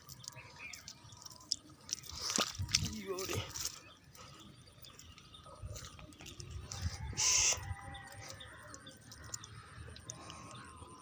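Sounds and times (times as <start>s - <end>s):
birds calling: 0.0s - 11.0s
loud harsh bird call: 7.0s - 8.6s.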